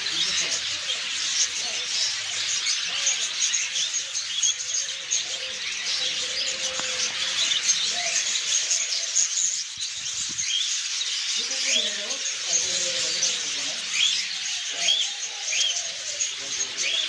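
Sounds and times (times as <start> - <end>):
birds chirping and twittering: 0.0 - 17.0.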